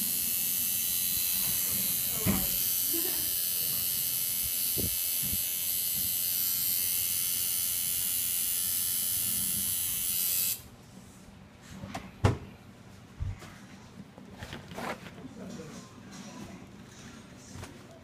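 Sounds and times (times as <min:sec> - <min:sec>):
tattoo machine buzzing: 0:00.0 - 0:10.7.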